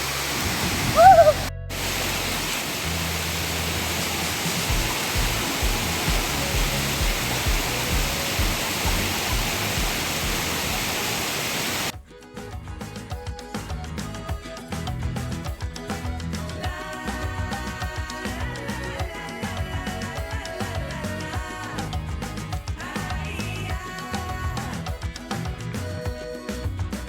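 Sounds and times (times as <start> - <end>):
waterfall rushing: 0.0 - 11.9
person calling: 0.6 - 5.1
background music with low beat: 1.0 - 10.9, 11.9 - 27.0.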